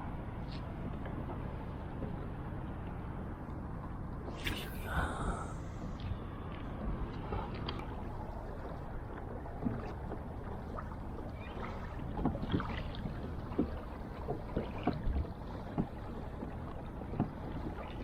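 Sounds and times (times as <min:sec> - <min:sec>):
water splashes and knocks: 0:06.5 - 0:18.0
water lapping against kayak hull: 0:07.1 - 0:18.0.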